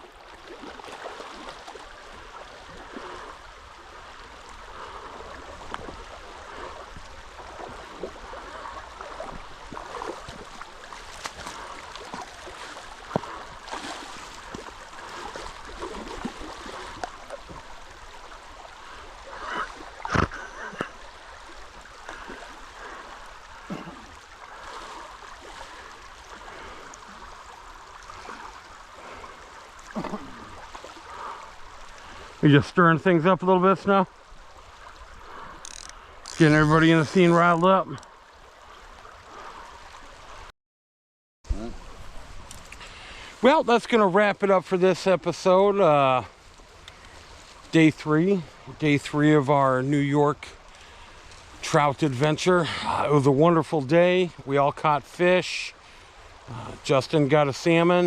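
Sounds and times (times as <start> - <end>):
small water splashes and clicks: 0.0 - 32.4, 33.8 - 40.5, 42.2 - 45.5, 46.2 - 49.4, 50.4 - 52.4
creek water running over stones: 0.0 - 40.5, 41.5 - 58.0.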